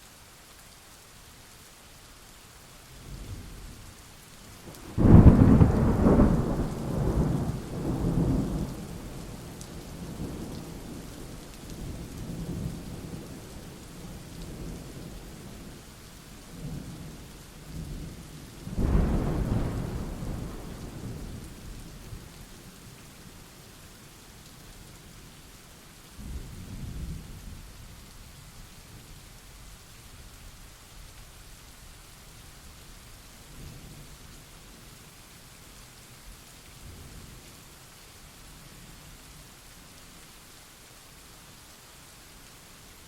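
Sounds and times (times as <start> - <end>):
rain falling: 0.0 - 43.0
thunder rumbling: 4.7 - 11.0, 18.7 - 22.3.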